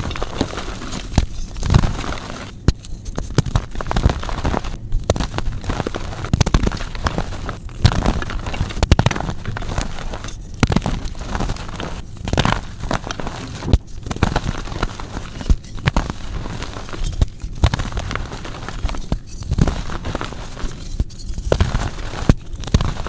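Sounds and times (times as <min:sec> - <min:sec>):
chalk blocks being crushed: 0:00.0 - 0:23.0.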